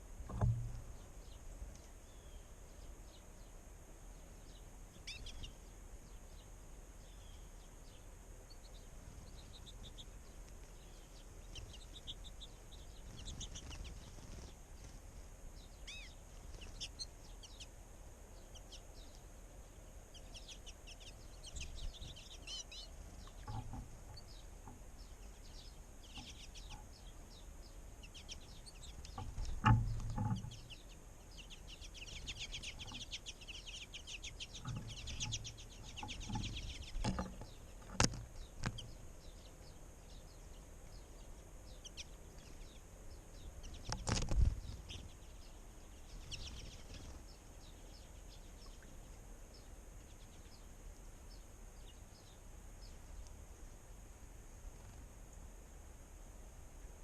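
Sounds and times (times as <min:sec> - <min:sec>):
small birds chirping: 0:00.0 - 0:57.0
dull thumps: 0:00.2 - 0:00.9.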